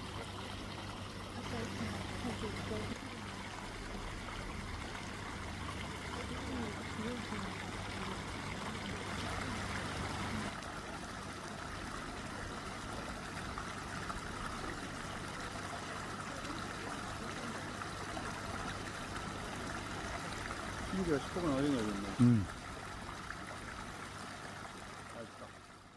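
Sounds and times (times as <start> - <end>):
water trickling: 0.0 - 25.9
faint voice: 22.0 - 22.5.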